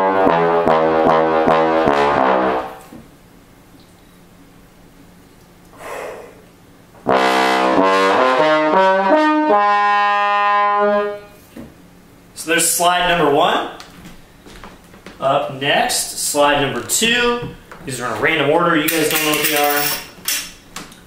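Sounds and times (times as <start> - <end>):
bass trombone playing: 0.0 - 2.9, 7.0 - 11.4
person breathing: 5.7 - 6.5.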